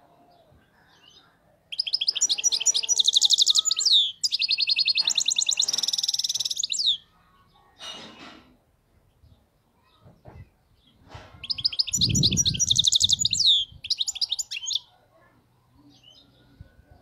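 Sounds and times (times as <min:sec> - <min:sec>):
goldfinch twittering song: 0:01.7 - 0:07.0, 0:11.4 - 0:14.9.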